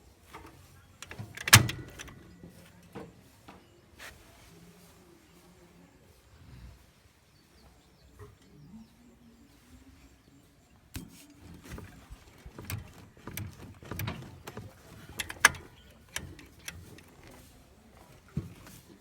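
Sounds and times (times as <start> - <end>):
metal parts and tools clicking: 1.0 - 2.4, 11.0 - 18.1.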